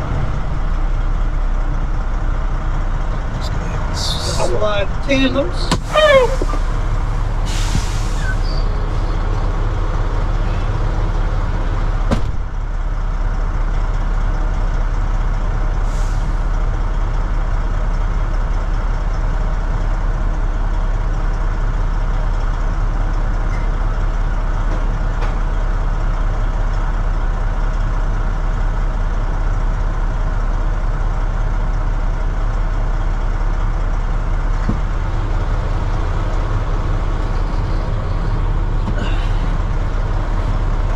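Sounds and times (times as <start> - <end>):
diesel truck engine running: 0.0 - 40.9
air hiss: 7.4 - 8.6.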